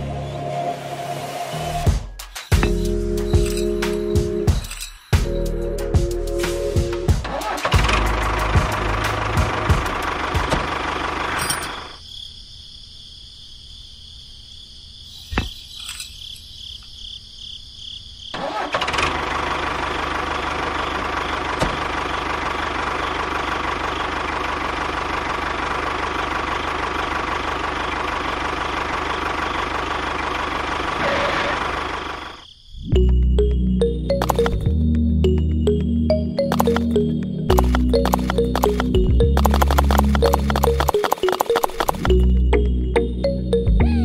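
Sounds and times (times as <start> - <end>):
model tractor engine running: 18.4 - 31.0, 37.6 - 42.2.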